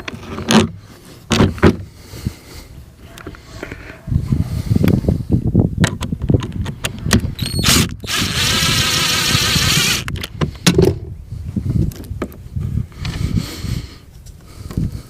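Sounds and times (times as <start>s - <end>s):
noisy whirring: 7.4s - 10.1s.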